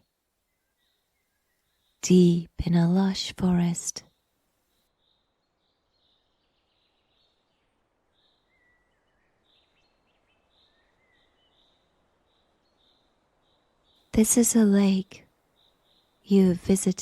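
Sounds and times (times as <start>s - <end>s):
birds chirping: 4.9s - 17.0s.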